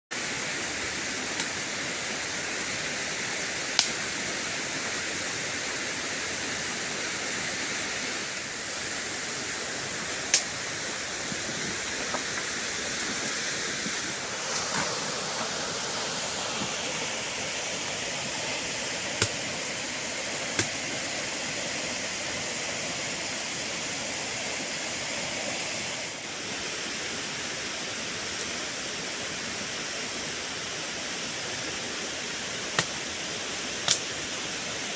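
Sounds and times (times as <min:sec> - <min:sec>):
rushing running water: 0:00.2 - 0:34.9.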